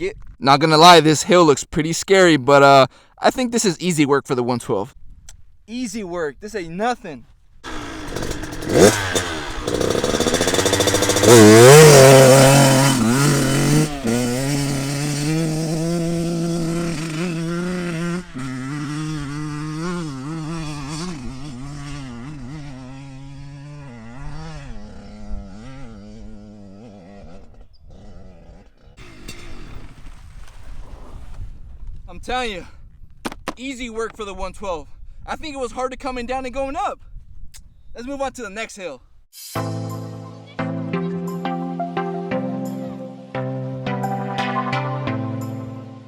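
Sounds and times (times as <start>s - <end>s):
dirt bike engine revving hard: 7.6s - 30.2s.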